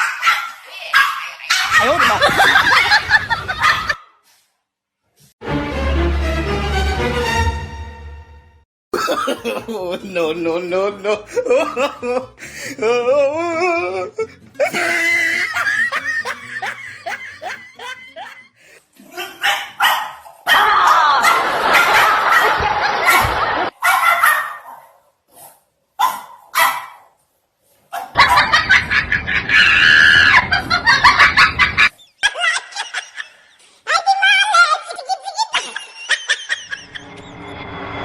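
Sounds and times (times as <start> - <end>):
people laughing and shrieking: 1.7 - 4.0, 9.0 - 19.4, 20.4 - 23.7, 28.2 - 37.4.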